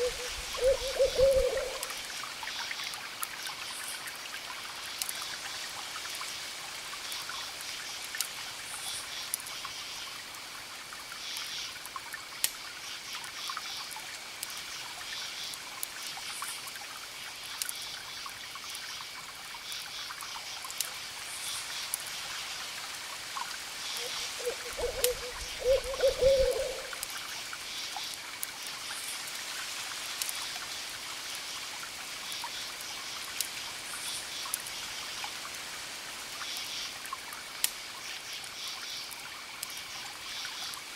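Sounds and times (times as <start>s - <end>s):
owl hooting: 0.0s - 1.9s, 24.0s - 27.0s.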